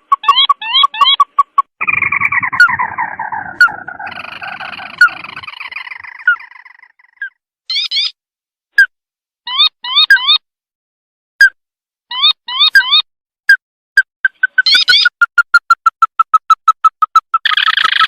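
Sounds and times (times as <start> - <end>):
bird call with descending trill: 0.2 - 8.2, 14.3 - 15.6.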